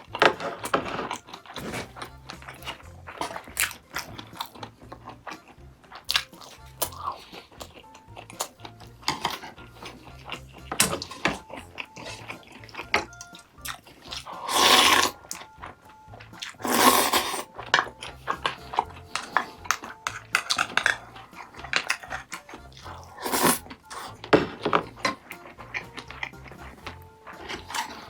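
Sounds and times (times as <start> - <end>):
chewing: 0.0 - 28.0
quiet background music: 0.0 - 28.0
slurping soup: 0.0 - 28.0
spoon and chopsticks clicking dishes: 17.7 - 22.8.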